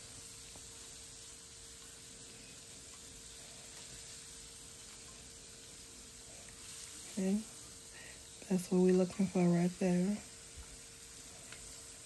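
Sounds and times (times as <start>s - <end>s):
chicken sizzling in a pan: 0.0s - 12.0s.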